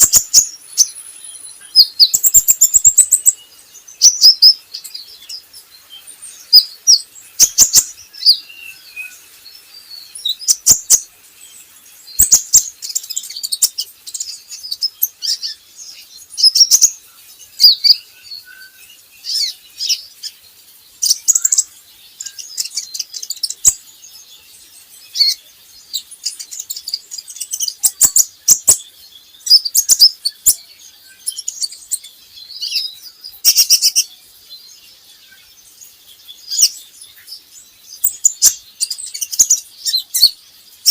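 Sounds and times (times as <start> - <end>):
bird chirping and twittering: 0.0 - 40.9.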